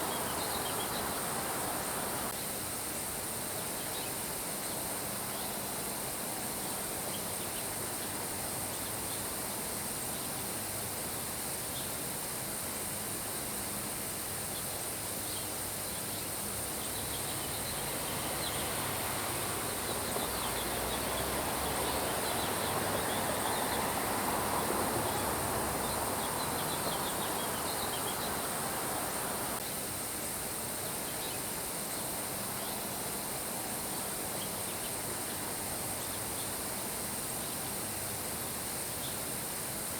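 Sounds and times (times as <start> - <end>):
steady rain hiss: 0.0 - 39.9
faint high chirping: 19.4 - 29.6.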